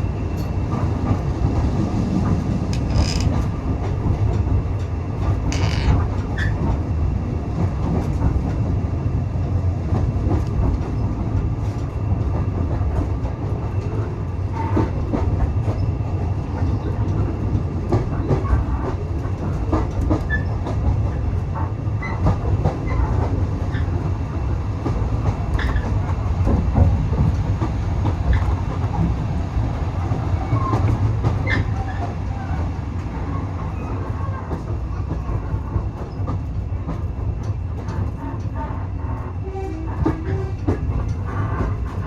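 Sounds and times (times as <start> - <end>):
train carriage rumble: 0.0 - 42.0
wheel clicks and squeaks: 2.8 - 3.4.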